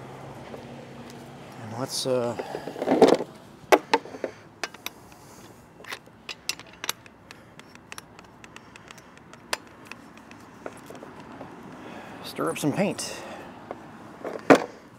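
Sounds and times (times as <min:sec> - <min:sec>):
hard objects clicking and knocking: 0:02.5 - 0:05.2, 0:05.8 - 0:11.6.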